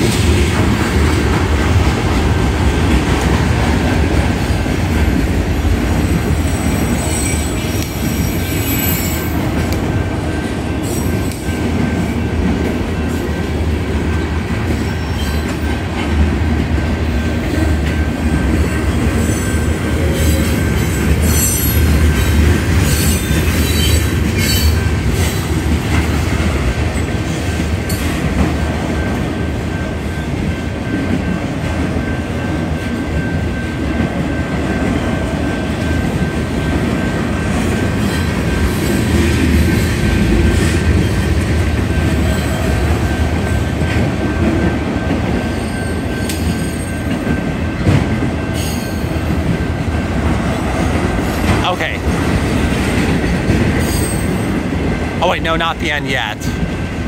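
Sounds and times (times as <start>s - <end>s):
freight train rolling past: 0.0s - 57.0s
rumble of wheels on rail: 0.0s - 57.0s
high-pitched wheel squeal: 6.4s - 9.4s, 21.2s - 21.9s.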